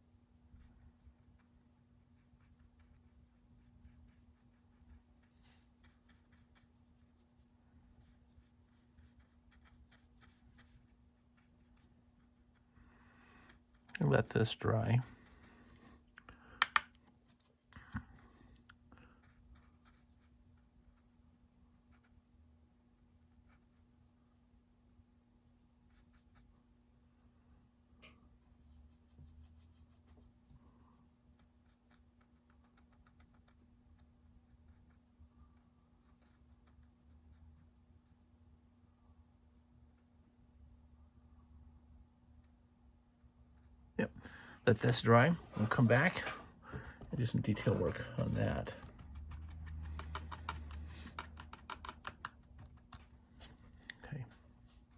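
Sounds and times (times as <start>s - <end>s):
low electrical hum: 0.0s - 54.9s
paintbrush strokes on paper: 0.3s - 12.8s, 28.3s - 33.1s, 44.7s - 54.9s.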